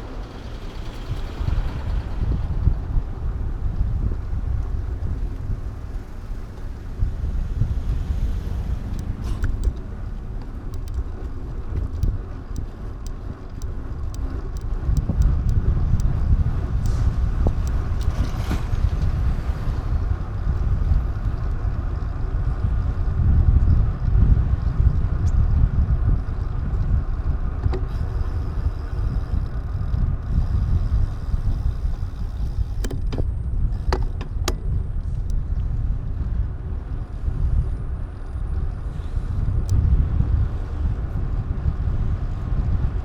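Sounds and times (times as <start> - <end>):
low rumbling road and wind noise: 0.0 - 43.0
faint clicks: 3.6 - 19.1, 27.6 - 36.2.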